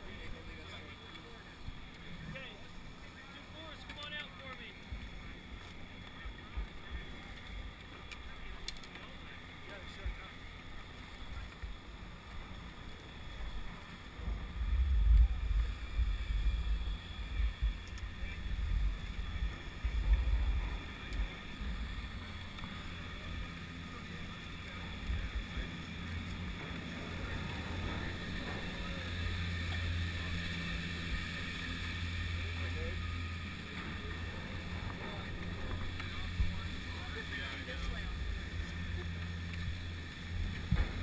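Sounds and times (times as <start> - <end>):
faint high hum: 0.0 - 41.0
wind buffeting microphone: 14.2 - 23.0.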